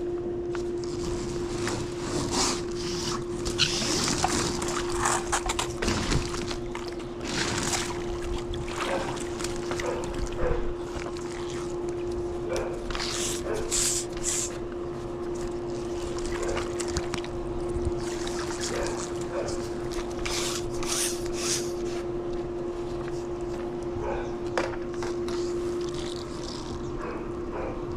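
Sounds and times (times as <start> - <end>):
steady hum: 0.0 - 27.9
water sloshing and splashing: 1.0 - 21.3.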